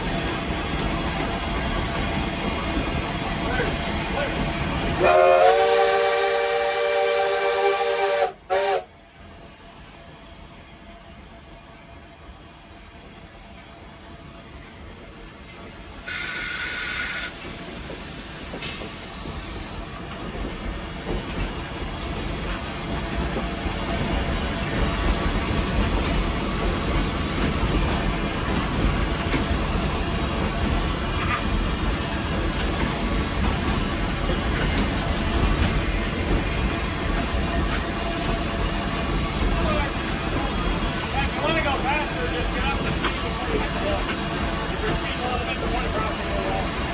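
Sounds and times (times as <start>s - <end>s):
steam locomotive running with hiss: 0.0s - 46.9s.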